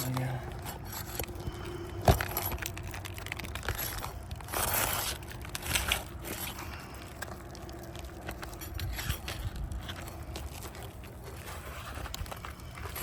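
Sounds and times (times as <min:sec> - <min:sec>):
roof shingles being scraped: 0:02.4 - 0:06.9.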